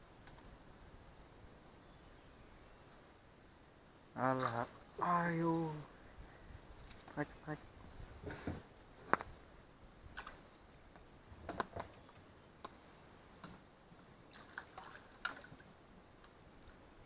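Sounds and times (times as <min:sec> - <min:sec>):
small splashes and drips: 0:10.1 - 0:10.7, 0:14.2 - 0:16.8.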